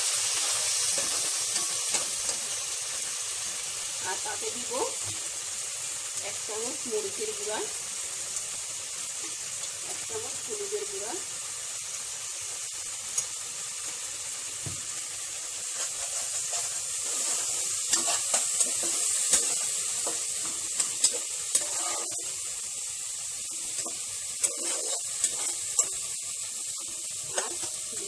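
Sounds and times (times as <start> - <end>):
masala sizzling in a pot: 0.0 - 28.0
spatula scraping a pan: 0.2 - 2.7, 15.6 - 22.6, 23.4 - 28.0.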